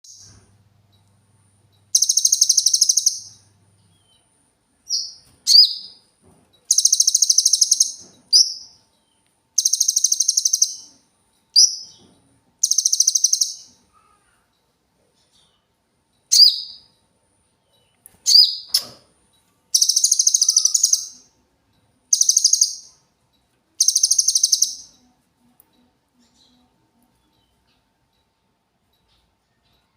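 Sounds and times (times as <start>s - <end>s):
bird singing high trills: 1.9s - 3.5s, 9.6s - 11.0s, 12.6s - 13.8s, 19.7s - 21.3s, 22.1s - 23.0s, 23.8s - 25.0s.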